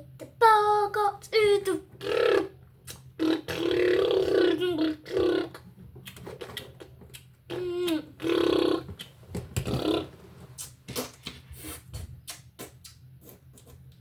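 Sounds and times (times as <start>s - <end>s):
child vocalizing: 1.4s - 2.6s, 3.2s - 5.6s, 7.5s - 8.9s.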